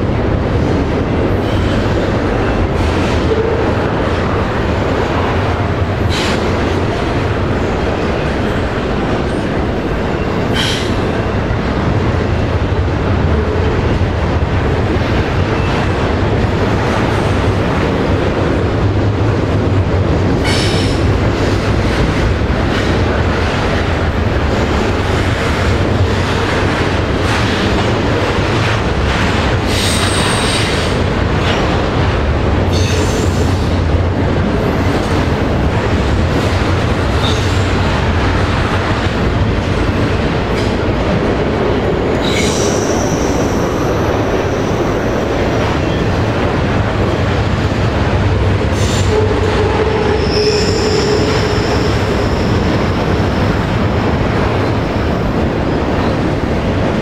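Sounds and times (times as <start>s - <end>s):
train rumbling and clattering: 0.0s - 57.0s.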